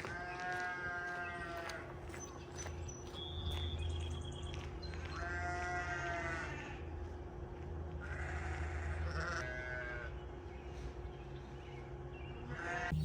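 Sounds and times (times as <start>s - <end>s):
farm animal calling: 0.0s - 2.2s, 5.0s - 6.8s, 8.0s - 10.8s, 12.2s - 13.0s
steady low hum: 0.0s - 13.0s.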